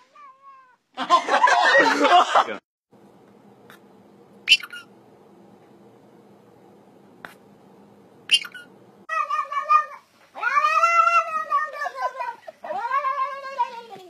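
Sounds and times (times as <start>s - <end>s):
cat meowing: 8.3s - 13.8s.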